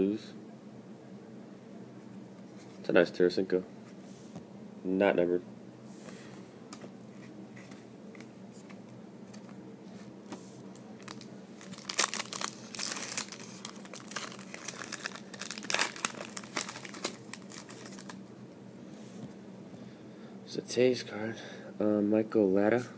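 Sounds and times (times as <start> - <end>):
plastic wrapper crinkling: 11.0 - 18.2
wrapper tearing: 11.0 - 18.2.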